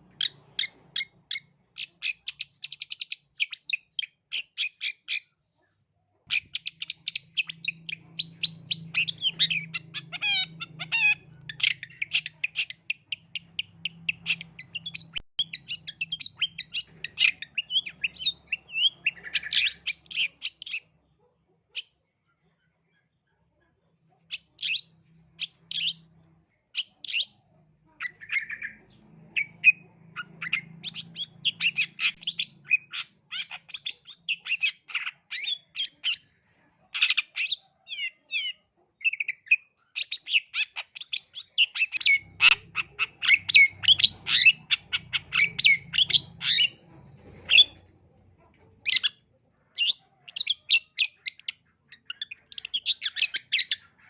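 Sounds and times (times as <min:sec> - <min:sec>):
bird chattering song: 0:00.0 - 0:05.4, 0:06.3 - 0:23.6, 0:24.2 - 0:54.0.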